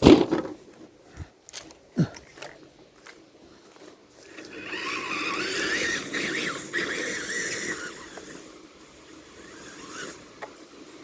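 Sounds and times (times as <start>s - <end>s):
electric motor and gears whining: 4.2s - 11.0s.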